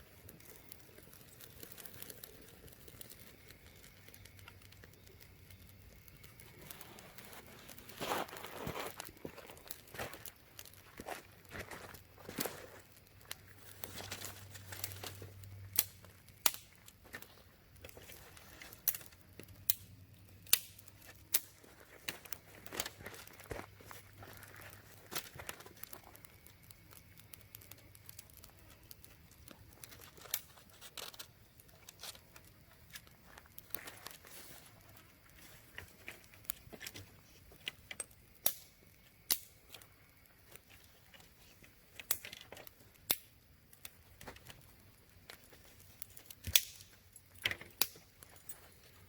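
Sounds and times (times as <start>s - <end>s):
rustling and crinkling: 0.0s - 19.6s, 20.8s - 43.0s, 43.7s - 49.0s
sharp clicks and snaps: 14.4s - 17.0s, 18.8s - 23.0s, 37.6s - 41.3s, 42.0s - 48.4s.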